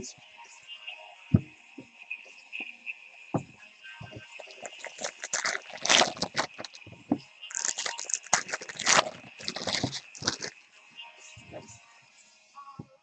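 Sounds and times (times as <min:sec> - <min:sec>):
cards being shuffled: 0:04.4 - 0:06.9, 0:07.5 - 0:10.6
card wrappers crinkling: 0:04.4 - 0:10.6.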